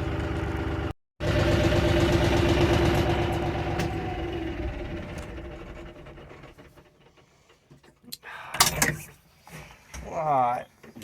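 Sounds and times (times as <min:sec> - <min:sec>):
tractor engine idling: 0:00.0 - 0:08.0.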